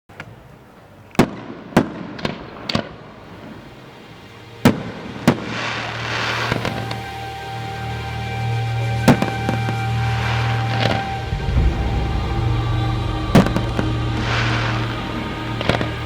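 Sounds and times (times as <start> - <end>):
fireworks hissing crackle: 3.2 - 7.2
fireworks bangs: 10.9 - 16.0.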